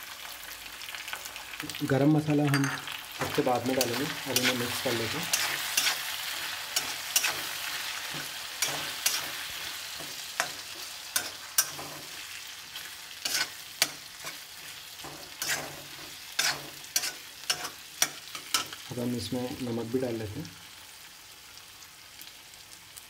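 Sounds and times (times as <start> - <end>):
potatoes sizzling in oil: 0.0 - 23.0.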